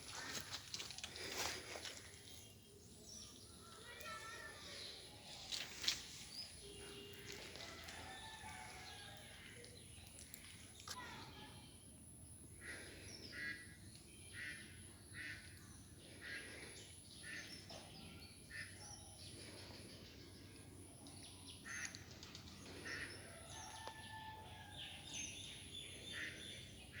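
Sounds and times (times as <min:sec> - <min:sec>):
faint background noise: 0:00.0 - 0:27.0
birds calling: 0:05.8 - 0:27.0.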